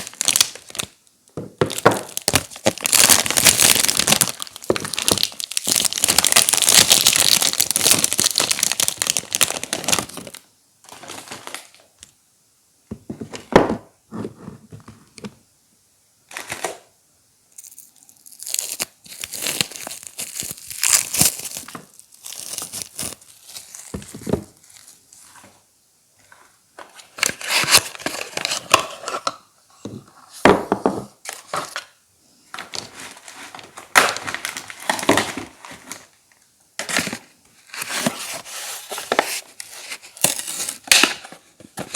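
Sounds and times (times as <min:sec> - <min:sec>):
packaging tearing and crinkling: 0:00.0 - 0:01.0, 0:01.6 - 0:11.8, 0:17.6 - 0:25.0, 0:27.2 - 0:28.9, 0:33.1 - 0:36.1, 0:36.8 - 0:41.9.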